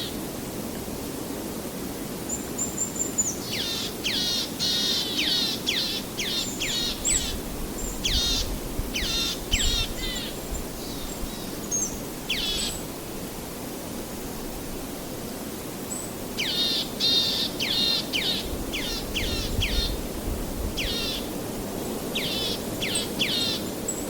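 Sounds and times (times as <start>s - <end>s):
songbird singing: 2.3s - 12.9s, 15.9s - 21.3s, 21.9s - 24.0s.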